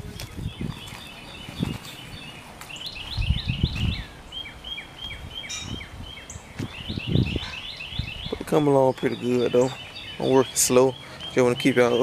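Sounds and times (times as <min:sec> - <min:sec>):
bird chirping short notes: 0:04.7 - 0:08.4.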